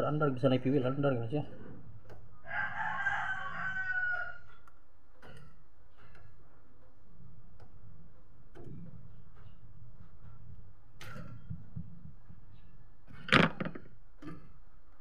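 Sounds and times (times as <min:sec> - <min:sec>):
rooster crowing: 0:02.4 - 0:04.5.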